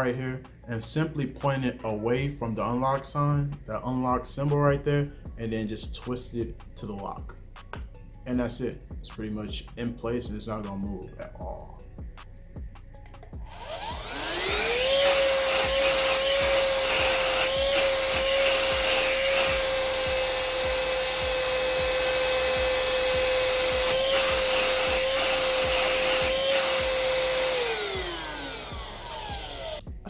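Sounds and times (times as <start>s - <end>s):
handheld vacuum cleaner whining: 13.3s - 29.9s.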